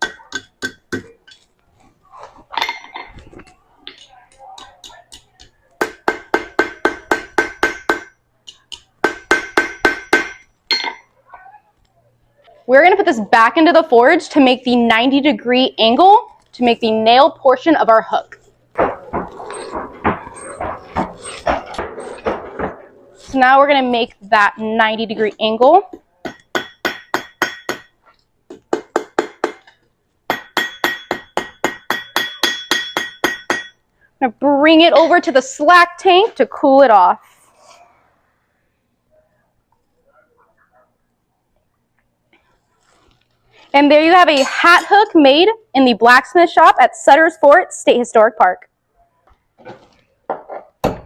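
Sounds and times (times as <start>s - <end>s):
hammer ringing on anvil: 5.8s - 11.0s, 26.2s - 28.0s, 30.3s - 33.8s.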